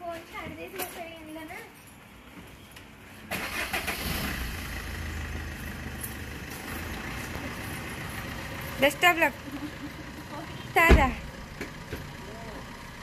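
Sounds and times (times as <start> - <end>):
car engine starting and idling: 3.3 - 13.0.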